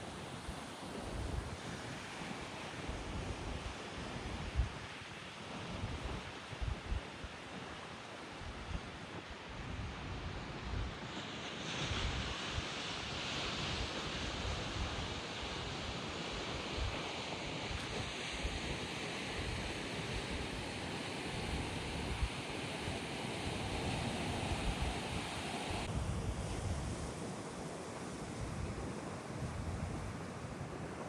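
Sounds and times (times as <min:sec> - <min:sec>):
gusty wind on microphone: 0:02.9 - 0:04.9, 0:13.5 - 0:27.4.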